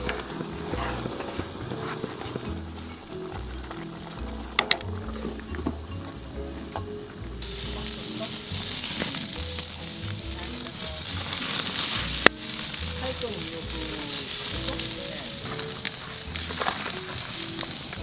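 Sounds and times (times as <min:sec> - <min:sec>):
background music: 0:00.0 - 0:18.0
meat sizzling: 0:07.4 - 0:18.0.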